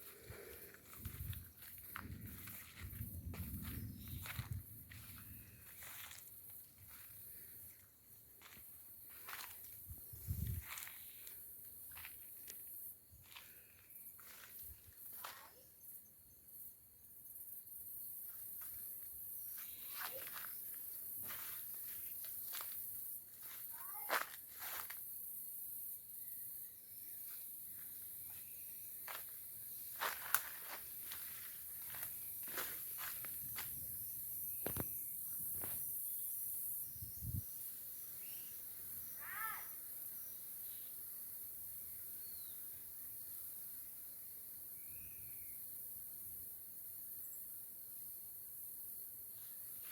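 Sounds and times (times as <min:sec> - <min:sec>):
crickets chirring: 0:00.0 - 0:49.9
insect chorus: 0:00.0 - 0:49.9
footsteps in leaf litter: 0:23.4 - 0:25.0, 0:29.0 - 0:33.3.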